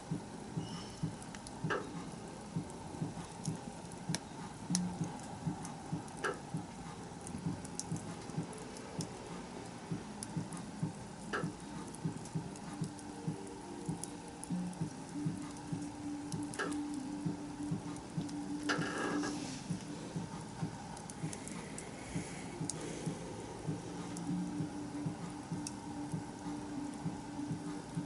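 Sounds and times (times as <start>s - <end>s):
bonfire crackling: 0.0s - 28.0s.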